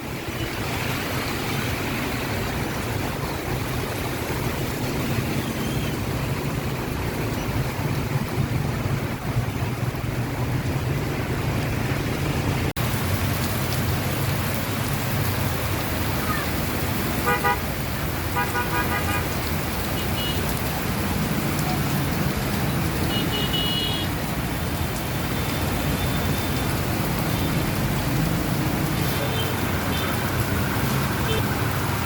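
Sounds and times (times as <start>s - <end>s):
steady rain: 0.0s - 32.0s
street traffic: 0.0s - 32.0s
vehicle horn tooting: 17.2s - 17.6s.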